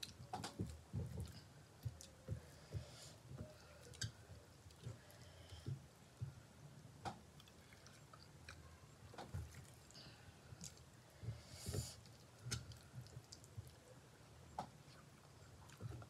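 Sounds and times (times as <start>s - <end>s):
fingers mixing food on plate: 0.0s - 6.4s
faint chewing: 0.0s - 16.0s.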